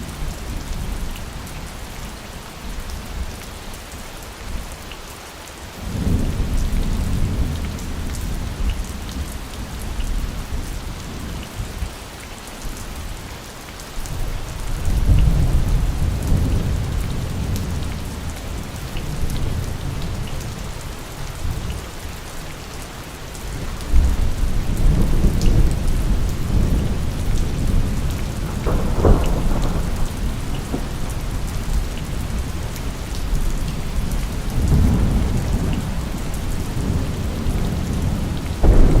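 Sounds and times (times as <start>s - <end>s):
steady rain: 0.0s - 39.0s
thunder rumbling: 23.6s - 39.0s
sharp thunder crack: 26.4s - 31.1s, 38.6s - 39.0s.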